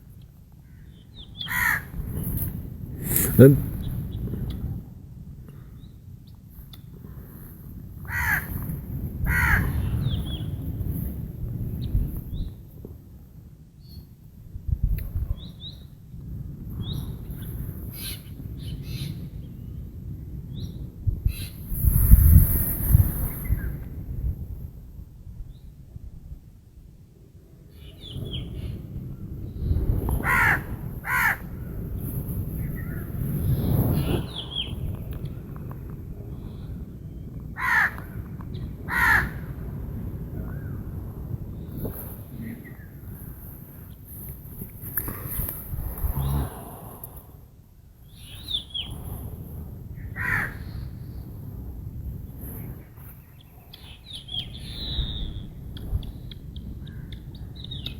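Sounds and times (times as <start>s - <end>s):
birds chirping: 0.7s - 4.6s, 30.4s - 35.4s, 48.0s - 49.1s, 52.7s - 57.9s
crow cawing: 1.5s - 2.0s, 8.1s - 8.6s, 9.3s - 9.8s, 30.2s - 31.5s, 37.6s - 38.1s, 38.9s - 39.4s, 50.2s - 50.7s.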